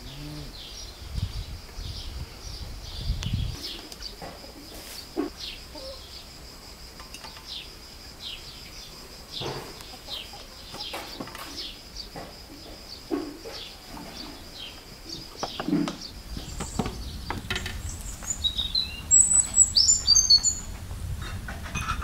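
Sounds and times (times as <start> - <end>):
small bird chirping: 0.0 - 6.3, 7.4 - 20.8
steady high hum: 16.0 - 21.8.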